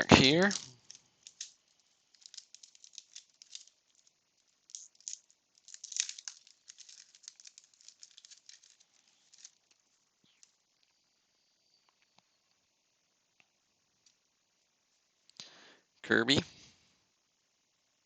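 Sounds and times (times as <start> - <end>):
wax paper pack crinkling: 0.0 - 10.6.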